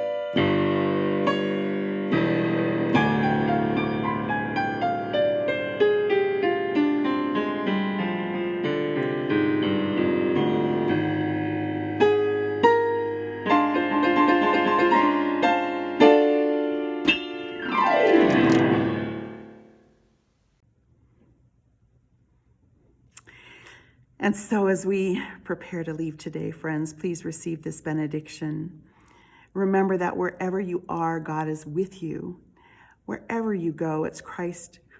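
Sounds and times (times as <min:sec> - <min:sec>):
solo piano: 0:00.0 - 0:19.8.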